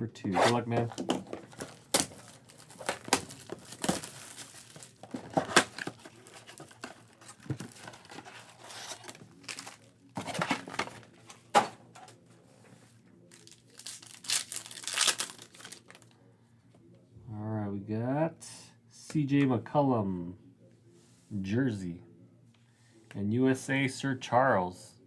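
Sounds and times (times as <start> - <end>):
plastic wrapping crinkling and tearing: 0.4 - 11.1, 13.3 - 16.1.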